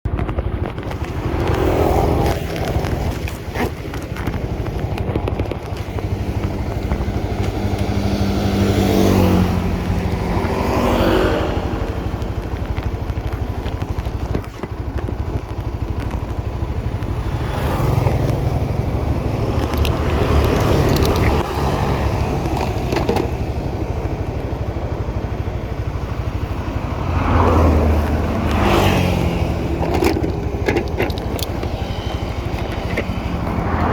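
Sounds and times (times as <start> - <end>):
wind and road noise: 0.0 - 33.9
motorcycle engine revving: 0.1 - 33.9.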